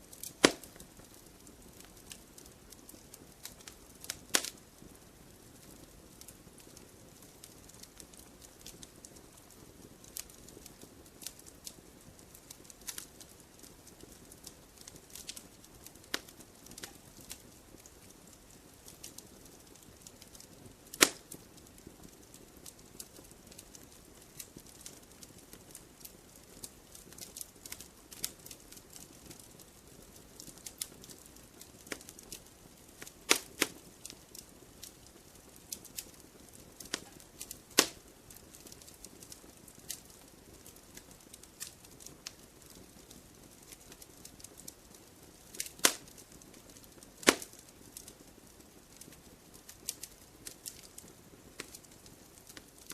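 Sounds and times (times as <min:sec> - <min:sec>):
campfire crackling: 0:00.0 - 0:52.9
loud wood pops: 0:00.4 - 0:00.8, 0:21.0 - 0:21.2, 0:33.3 - 0:33.7, 0:37.8 - 0:38.0, 0:45.8 - 0:46.0, 0:47.2 - 0:47.6.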